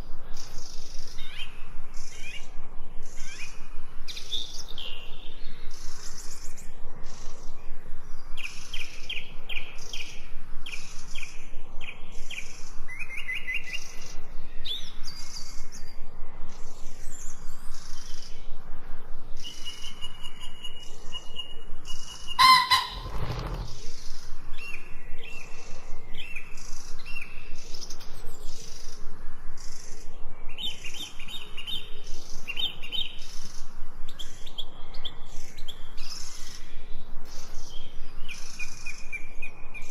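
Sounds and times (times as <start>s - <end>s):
songbirds chirping and trilling: 0.0s - 39.9s
brief loud sound: 22.4s - 23.7s.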